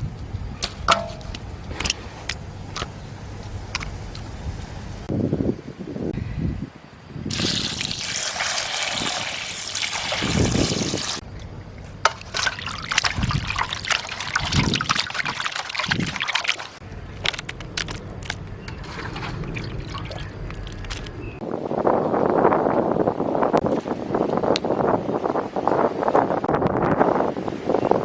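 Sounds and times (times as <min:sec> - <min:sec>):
water pouring: 0:07.3 - 0:21.1
water splashing: 0:07.3 - 0:21.4.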